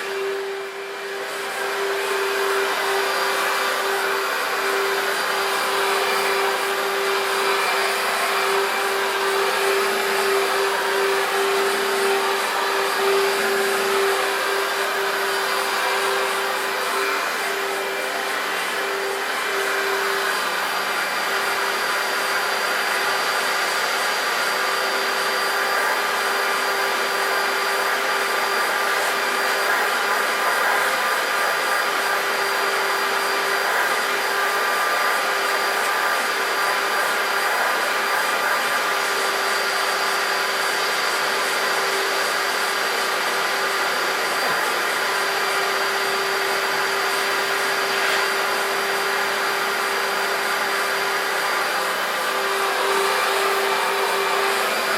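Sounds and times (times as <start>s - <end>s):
vacuum cleaner running: 0.0s - 54.9s.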